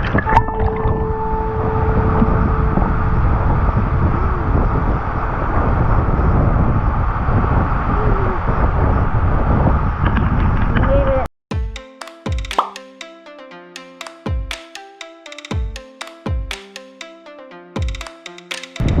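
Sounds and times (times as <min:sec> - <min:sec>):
sharp click: 0:11.8 - 0:13.2, 0:13.8 - 0:17.2, 0:17.8 - 0:19.0.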